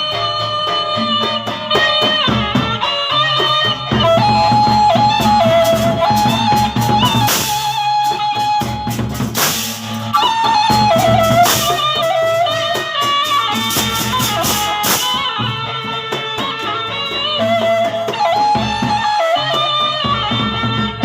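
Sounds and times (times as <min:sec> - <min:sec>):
drums steady beat: 0:00.0 - 0:21.0
bending melody line: 0:01.0 - 0:21.0
cymbal crashes: 0:07.0 - 0:08.2, 0:09.0 - 0:10.4, 0:11.4 - 0:12.1.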